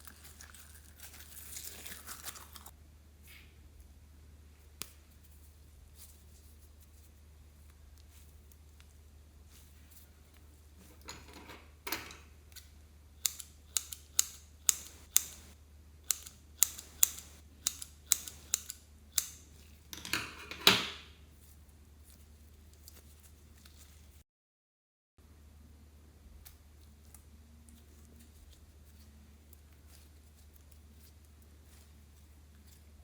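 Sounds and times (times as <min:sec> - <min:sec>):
faint low hum: 0:25.2 - 0:33.0.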